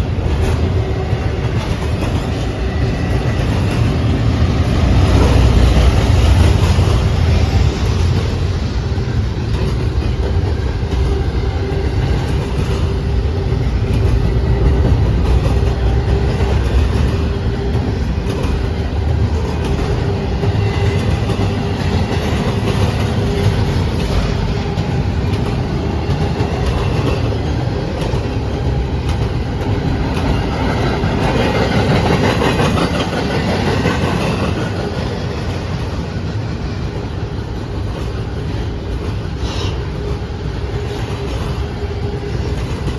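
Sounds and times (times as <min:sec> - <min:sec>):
freight train wheels on rails: 0:00.0 - 0:42.9.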